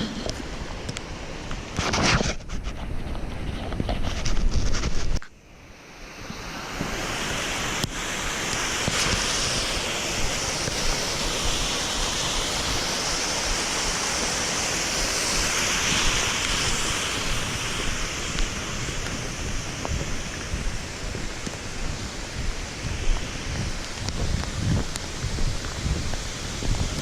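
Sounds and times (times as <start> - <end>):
wind and rain: 0.0 - 27.0
wind buffeting microphone: 14.9 - 27.0.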